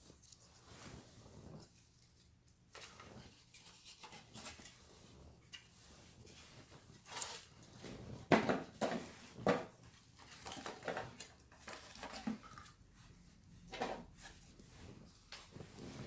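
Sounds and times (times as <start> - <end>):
parts knocking on a table: 8.3 - 9.7.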